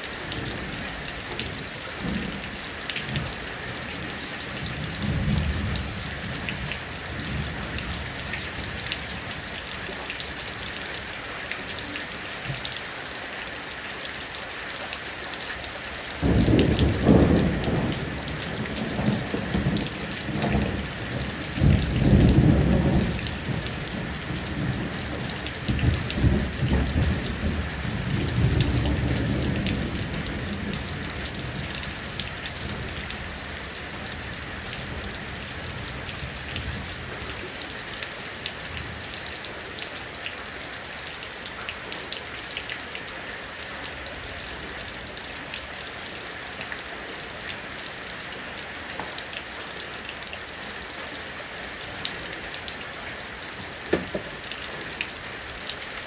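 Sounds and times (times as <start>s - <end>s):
heavy rain falling: 0.0s - 56.0s
thunder rumbling: 16.2s - 31.9s.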